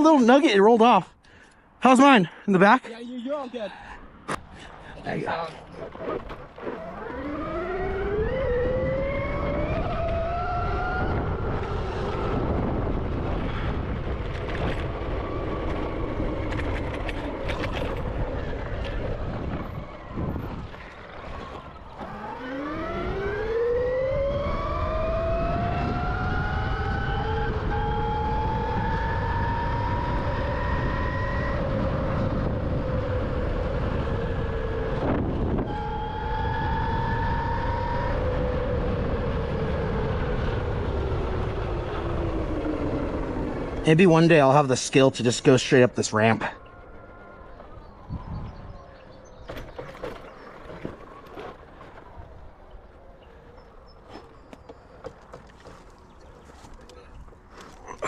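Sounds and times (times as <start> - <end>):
wind: 0.0 - 58.0
electric motor whining: 5.8 - 43.9.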